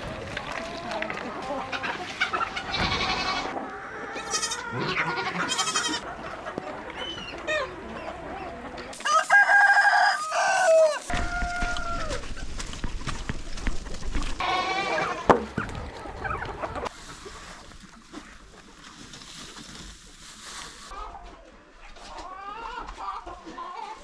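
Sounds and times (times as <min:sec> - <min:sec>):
chickens clucking: 0:00.0 - 0:12.9, 0:14.3 - 0:24.0
rooster crowing: 0:09.0 - 0:12.3.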